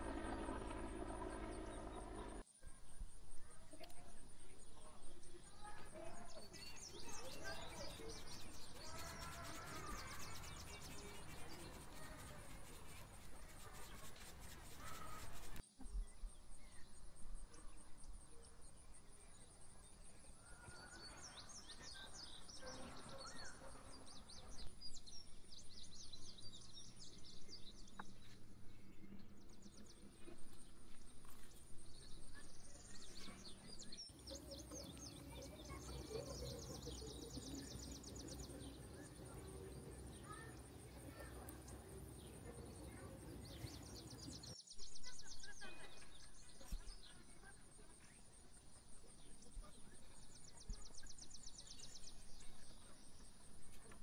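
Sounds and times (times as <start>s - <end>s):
birds chirping and trilling: 0.0s - 18.0s, 19.2s - 54.0s
faint outdoor background noise: 0.0s - 54.0s.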